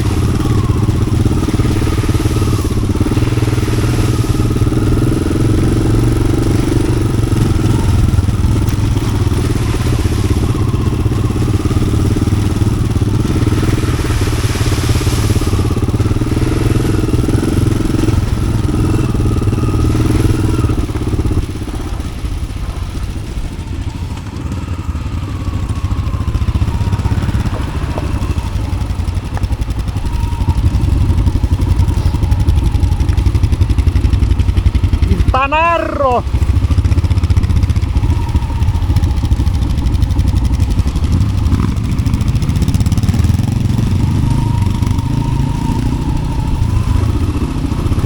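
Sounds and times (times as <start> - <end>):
motorcycle engine under throttle: 0.0 - 48.0.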